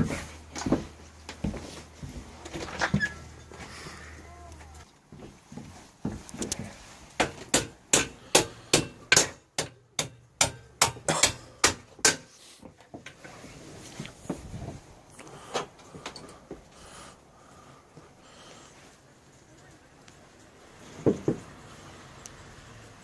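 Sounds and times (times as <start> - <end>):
hand hammer striking metal part: 7.2 - 12.3.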